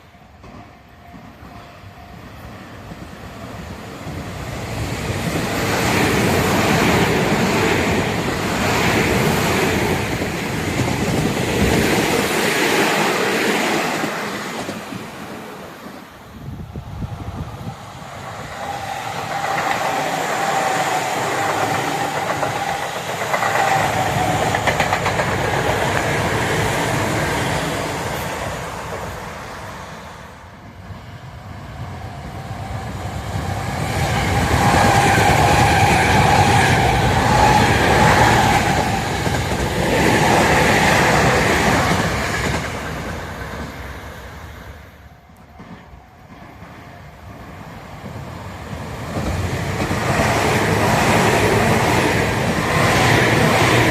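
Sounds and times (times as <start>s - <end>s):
train wheels clattering over rail joints: 21.2s - 26.6s.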